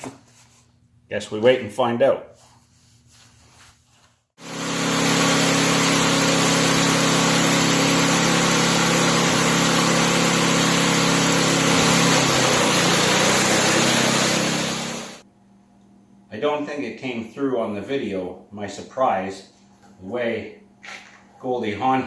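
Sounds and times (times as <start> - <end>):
riding mower engine running: 4.4 - 15.2.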